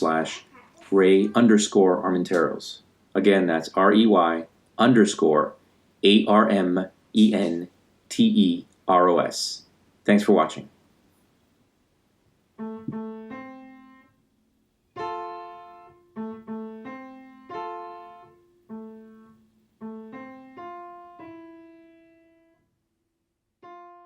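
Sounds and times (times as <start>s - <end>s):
slow piano music: 12.6s - 14.2s, 15.0s - 22.6s, 23.6s - 24.0s.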